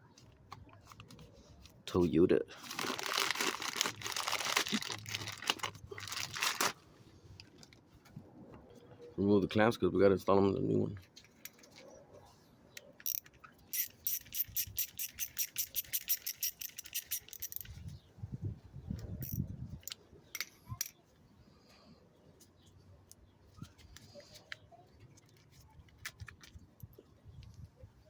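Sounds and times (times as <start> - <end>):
ratchet clicking: 13.0 - 17.7.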